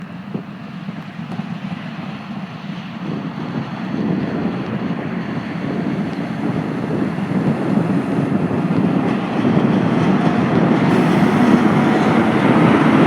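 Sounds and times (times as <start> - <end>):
diesel locomotive engine rumble: 0.0 - 13.0
wind noise on microphone: 2.9 - 13.0.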